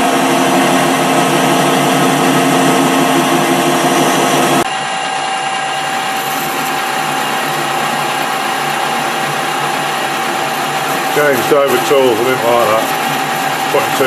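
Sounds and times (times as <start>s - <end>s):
metal lathe cutting with whine: 0.0s - 14.0s.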